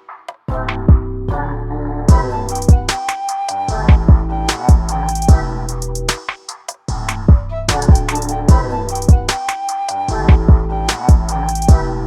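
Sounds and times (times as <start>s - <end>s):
deep kick drums: 0.5s - 1.4s, 2.1s - 3.0s, 3.7s - 5.8s, 6.9s - 9.4s, 10.1s - 12.0s
electronic beat music: 2.1s - 12.0s.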